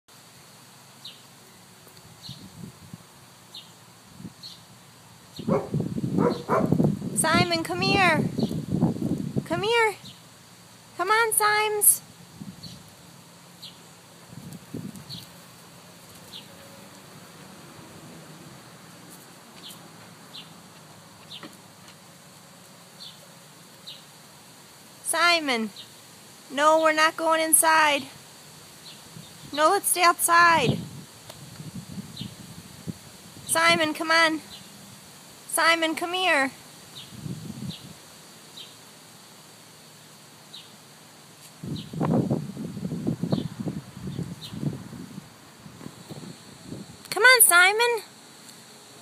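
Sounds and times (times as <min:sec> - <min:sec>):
steady outdoor hiss: 0:00.1 - 0:49.0
bird chirping: 0:05.3 - 0:06.8
small bird chirping: 0:43.2 - 0:44.7.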